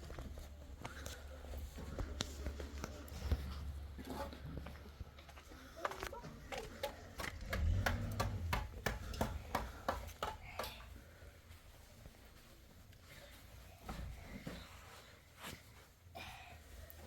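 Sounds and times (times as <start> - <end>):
low rumble: 7.2 - 9.5.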